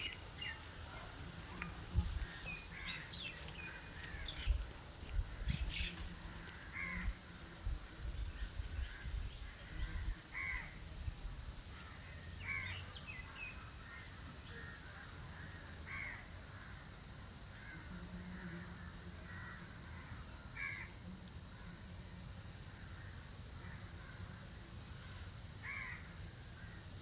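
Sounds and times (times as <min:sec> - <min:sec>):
bird calls: 0:00.0 - 0:04.6.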